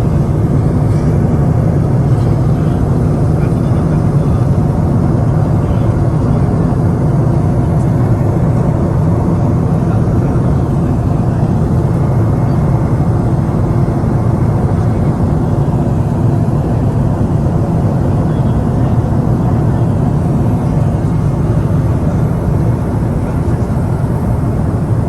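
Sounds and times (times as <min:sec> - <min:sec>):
jet cabin engine hum: 0:00.0 - 0:25.0.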